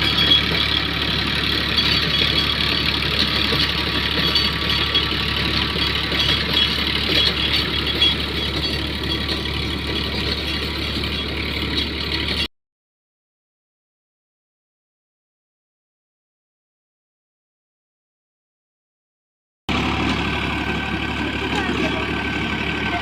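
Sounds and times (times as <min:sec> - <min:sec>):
rotavator working: 0:00.0 - 0:12.5, 0:19.7 - 0:23.0
tractor engine running: 0:00.0 - 0:12.5, 0:19.7 - 0:23.0.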